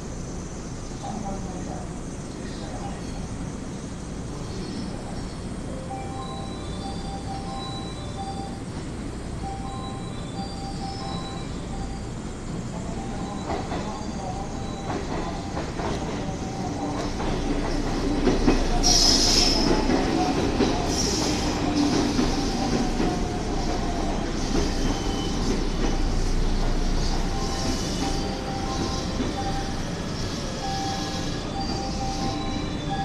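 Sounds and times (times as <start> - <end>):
electric train rumbling along rails: 0.0 - 33.0
high wheel squeals: 24.4 - 26.0, 27.0 - 33.0.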